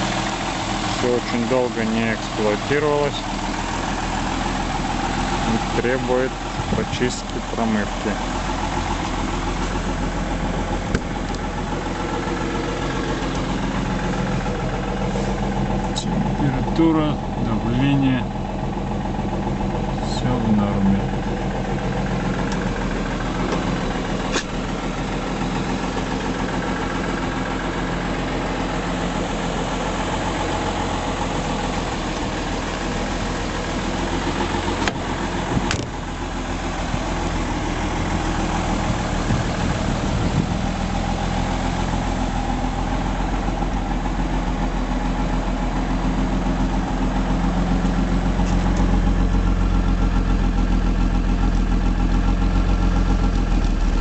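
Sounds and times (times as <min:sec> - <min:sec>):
straight-six engine idling: 0:00.0 - 0:54.0.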